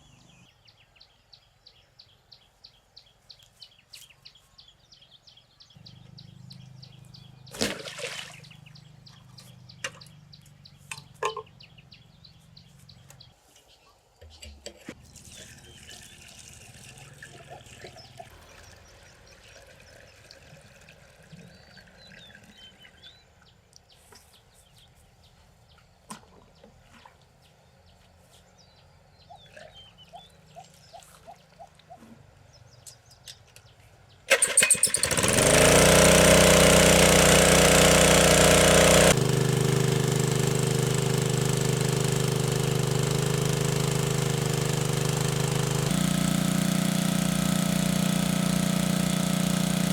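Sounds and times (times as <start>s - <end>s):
small engine running: 5.7s - 13.0s, 34.3s - 49.9s
bird chirps: 28.7s - 33.4s.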